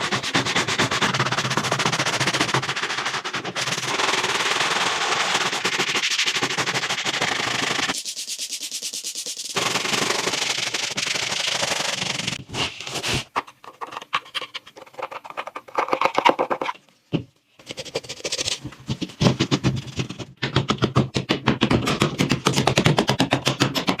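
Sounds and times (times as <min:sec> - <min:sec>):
fast clicking taps: 0:18.9 - 0:24.0.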